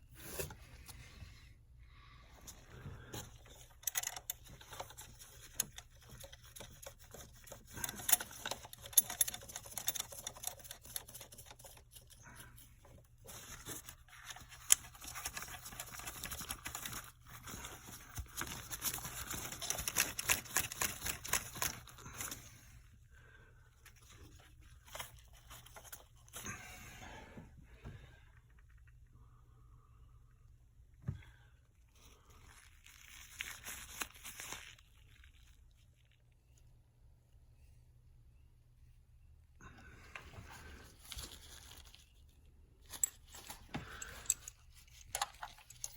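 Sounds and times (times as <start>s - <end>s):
tools clicking and tapping: 3.2s - 12.2s, 42.9s - 45.9s.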